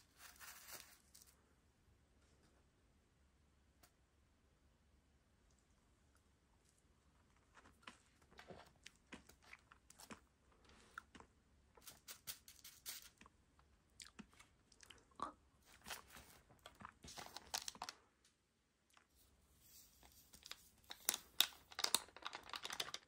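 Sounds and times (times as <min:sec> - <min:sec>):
crunching candy being chewed: 0:06.1 - 0:12.0, 0:13.1 - 0:18.0, 0:20.3 - 0:23.0.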